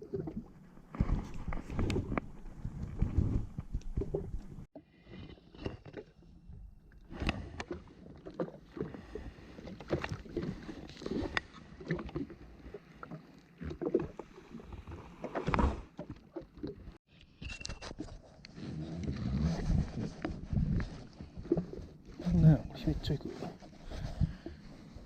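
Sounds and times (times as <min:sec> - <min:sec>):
water splashing against hull: 0:00.0 - 0:17.0.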